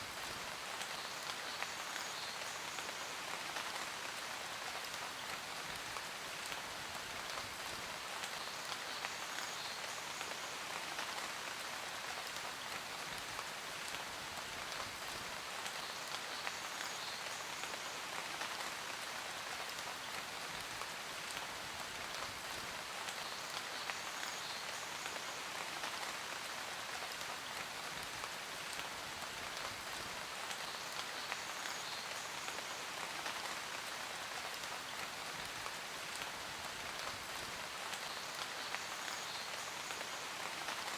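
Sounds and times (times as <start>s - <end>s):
rain on a hard surface: 0.0s - 40.9s.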